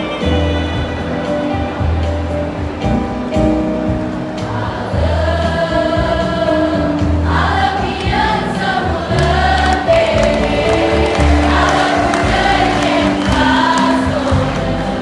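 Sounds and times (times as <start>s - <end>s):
choir singing: 4.4s - 15.0s
low bass notes: 8.1s - 15.0s.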